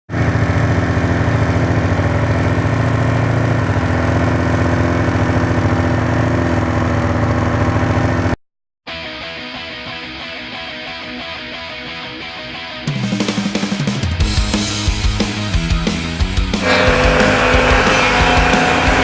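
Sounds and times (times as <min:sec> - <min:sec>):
snowmobile engine idling: 0:00.2 - 0:08.3, 0:16.6 - 0:19.0.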